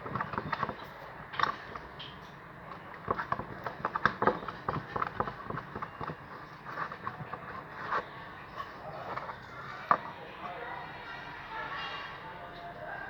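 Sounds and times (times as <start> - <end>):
slime stirred in a bowl: 0.0 - 10.2.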